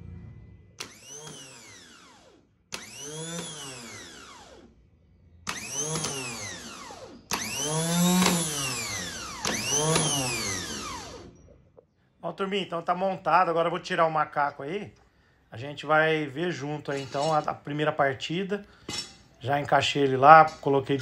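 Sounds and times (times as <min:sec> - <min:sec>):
electric motor whirring: 0:00.8 - 0:04.8, 0:05.4 - 0:11.4, 0:16.9 - 0:17.5
sharp click: 0:05.5 - 0:06.2.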